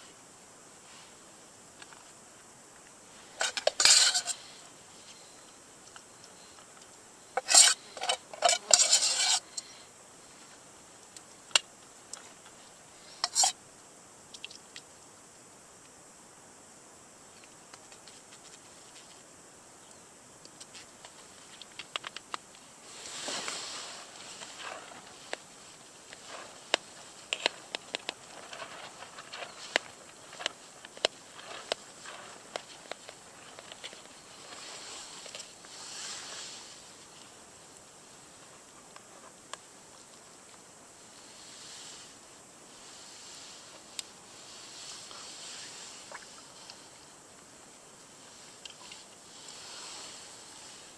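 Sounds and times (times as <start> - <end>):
metal utensils clinking on cookware: 3.4 - 4.4, 7.4 - 9.4
soft rustling: 22.5 - 39.3, 40.0 - 47.2.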